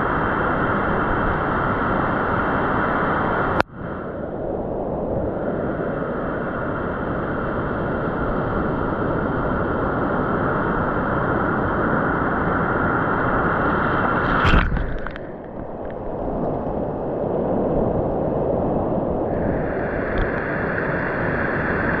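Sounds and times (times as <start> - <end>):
ocean surf washing in: 0.0 - 22.0
sharp water splash: 13.8 - 16.5.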